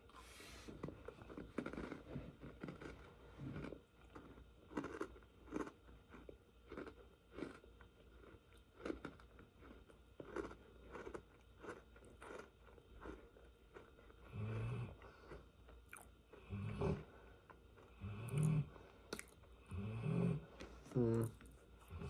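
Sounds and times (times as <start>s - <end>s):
crunchy chewing: 0.7s - 19.5s.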